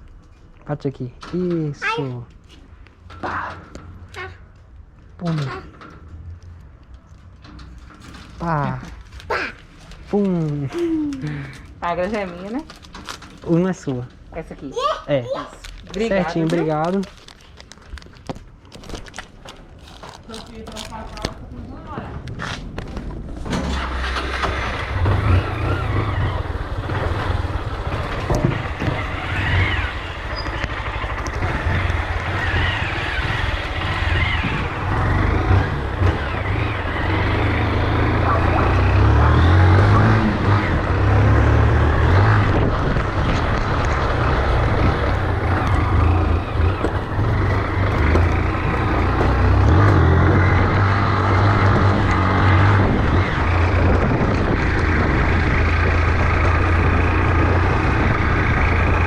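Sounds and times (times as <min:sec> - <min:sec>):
motorcycle engine and road rumble: 0:15.8 - 0:59.0
rushing wind noise: 0:23.2 - 0:59.0.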